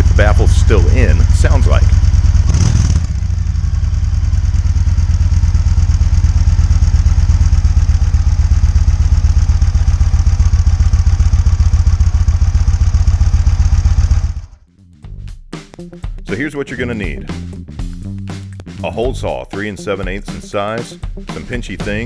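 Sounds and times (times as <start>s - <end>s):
motorcycle engine idling: 0.0s - 14.6s.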